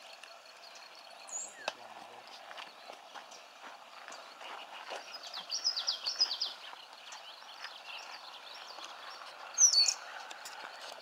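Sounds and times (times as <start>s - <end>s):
small bird singing: 0.0s - 11.0s.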